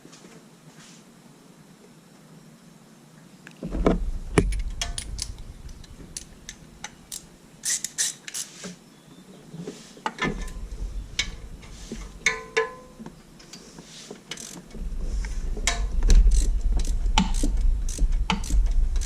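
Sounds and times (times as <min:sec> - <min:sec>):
low rumbling bumps: 0:03.6 - 0:07.6, 0:10.2 - 0:13.4, 0:14.6 - 0:19.0
hand tools clicking and clinking: 0:11.2 - 0:13.6, 0:14.2 - 0:14.8.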